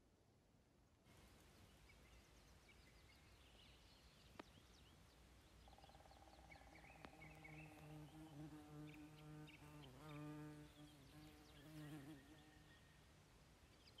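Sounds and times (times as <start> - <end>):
faint birdsong chirps: 1.1 - 14.0
faint clicks: 7.0 - 7.9.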